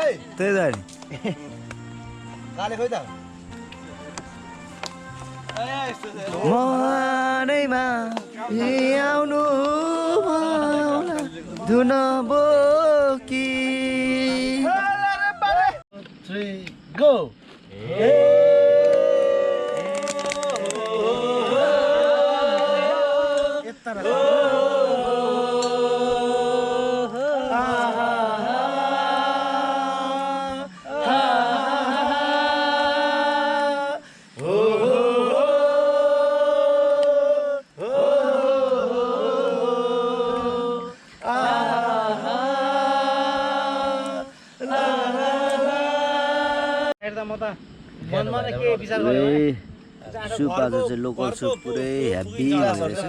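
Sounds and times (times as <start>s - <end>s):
person singing long held phrases: 6.3s - 15.0s, 17.8s - 47.0s.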